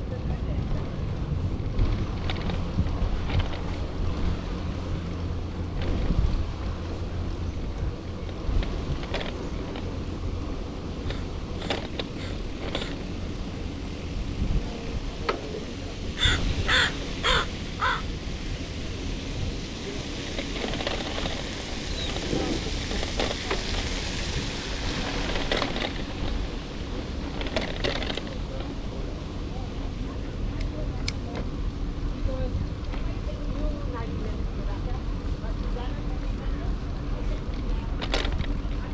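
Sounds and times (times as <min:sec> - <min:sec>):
wind rumble on microphone: 0:00.0 - 0:38.9
bird harsh calls: 0:16.2 - 0:18.1.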